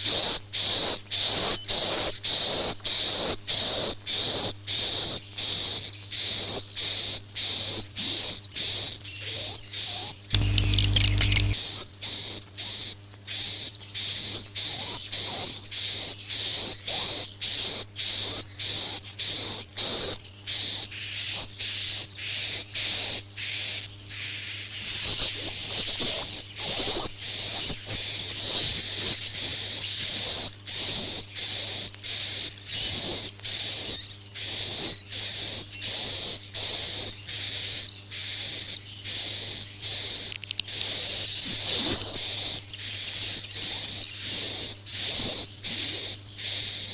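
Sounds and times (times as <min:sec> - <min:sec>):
high-pitched bird twittering: 0:10.4 - 0:11.6
low hum: 0:10.4 - 0:11.6.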